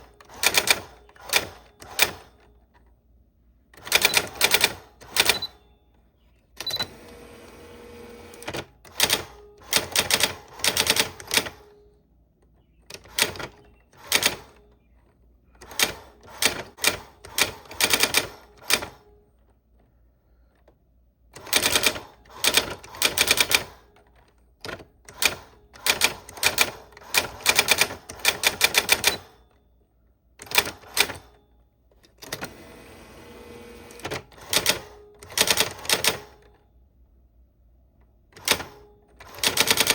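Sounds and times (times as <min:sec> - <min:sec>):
typewriter rasping: 0:00.0 - 0:02.6, 0:03.8 - 0:05.6, 0:06.6 - 0:11.8, 0:12.7 - 0:19.1, 0:21.4 - 0:29.5, 0:30.4 - 0:31.4, 0:32.1 - 0:36.5, 0:38.4 - 0:39.9
typewriter keys clacking: 0:03.8 - 0:05.5, 0:08.4 - 0:11.7, 0:15.6 - 0:19.0, 0:21.4 - 0:29.4, 0:33.9 - 0:36.5, 0:38.4 - 0:39.9.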